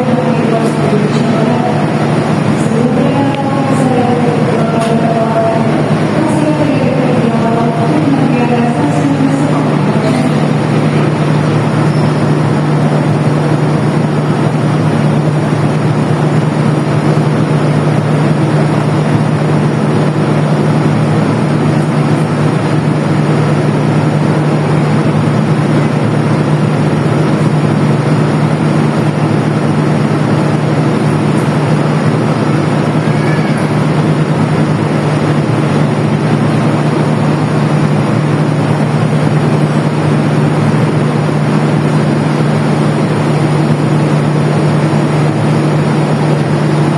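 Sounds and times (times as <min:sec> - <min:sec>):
train diesel engine running: 0:00.0 - 0:46.9.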